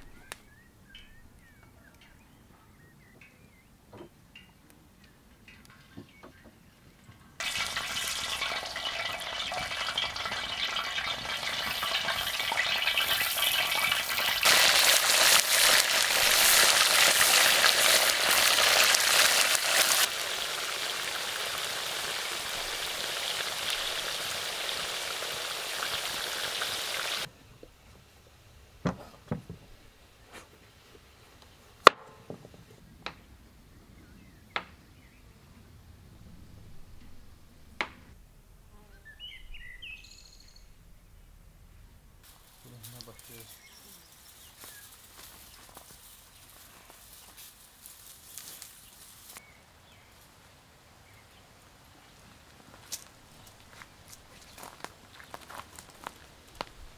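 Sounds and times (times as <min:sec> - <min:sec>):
food sizzling in hot oil: 0:07.4 - 0:27.3.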